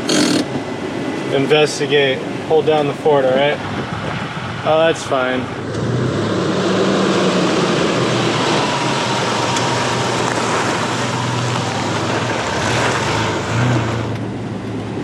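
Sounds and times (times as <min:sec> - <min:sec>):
truck engine running: 0:00.0 - 0:01.2, 0:06.8 - 0:15.0
tyre and wind noise: 0:03.4 - 0:04.7.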